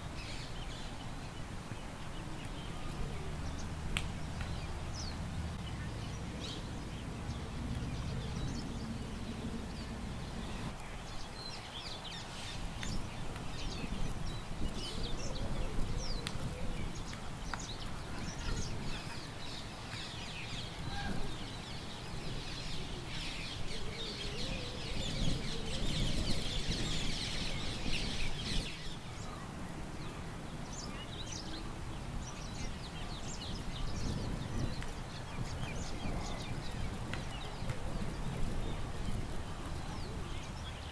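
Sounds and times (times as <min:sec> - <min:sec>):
small birds chirping: 0:00.1 - 0:40.9
wind rumble: 0:03.0 - 0:10.8, 0:31.8 - 0:40.9.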